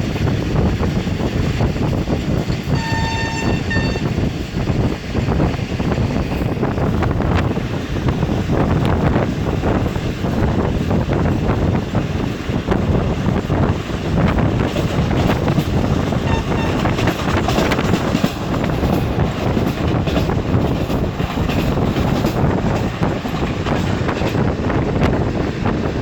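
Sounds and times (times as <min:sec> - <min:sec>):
train rumbling: 0:00.0 - 0:26.0
wheels clattering over rail joints: 0:12.6 - 0:25.2.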